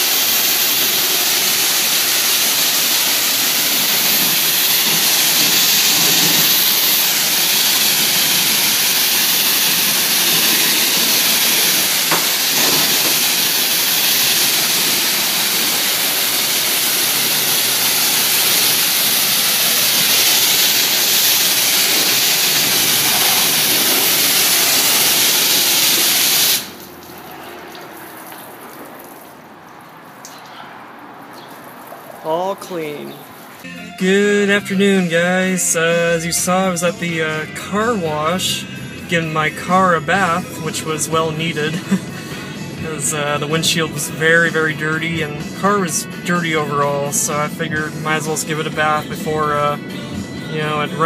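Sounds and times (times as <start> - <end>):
high-pressure water spray hissing: 0.0 - 30.4, 31.4 - 33.7.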